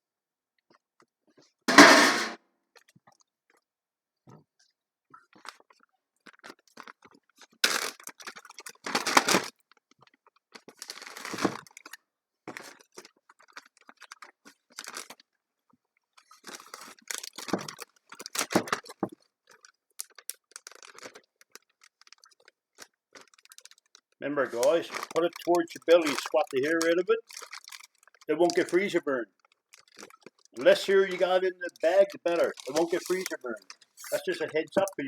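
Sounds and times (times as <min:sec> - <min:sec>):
plastic bags rustling and crinkling: 0:07.6 - 0:09.5, 0:10.8 - 0:12.0, 0:16.4 - 0:19.1, 0:20.0 - 0:22.5, 0:23.2 - 0:35.0.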